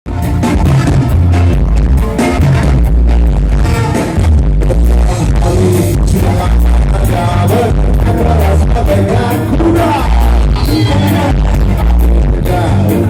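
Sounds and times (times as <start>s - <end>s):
ska band playing live: 0.1s - 13.0s
person singing: 4.0s - 13.0s.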